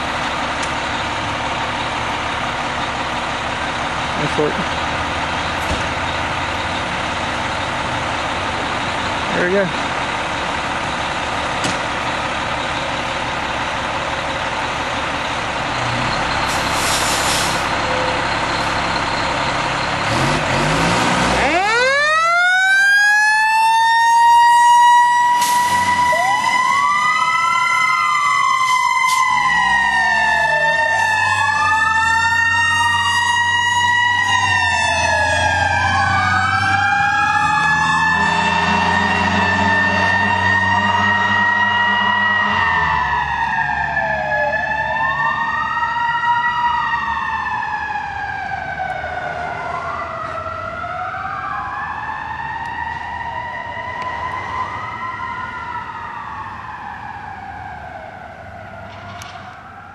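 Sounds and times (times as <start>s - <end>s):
fire engine running: 0.0s - 59.9s
electronic siren sweeping: 20.7s - 59.9s
mechanical siren wailing: 21.3s - 59.9s.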